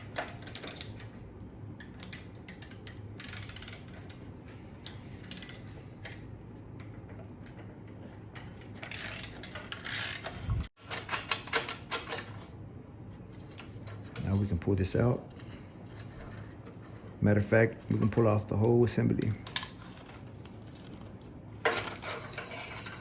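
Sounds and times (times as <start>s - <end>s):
socket ratchet clicking: 2.0s - 4.2s.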